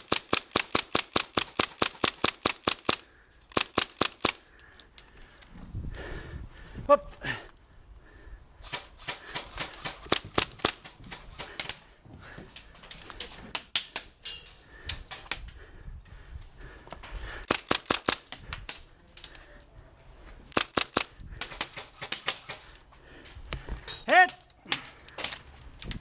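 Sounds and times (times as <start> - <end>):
airsoft rifle firing: 20.5 - 22.6.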